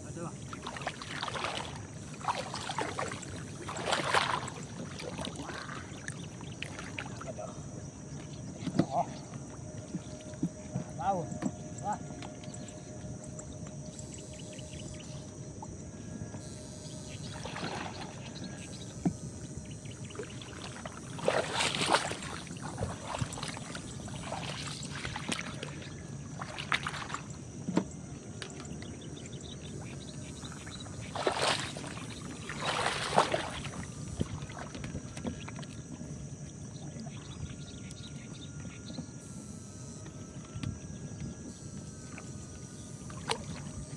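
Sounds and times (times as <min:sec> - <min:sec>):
moving water: 0:00.0 - 0:43.9
water splashing and sloshing: 0:00.0 - 0:43.9.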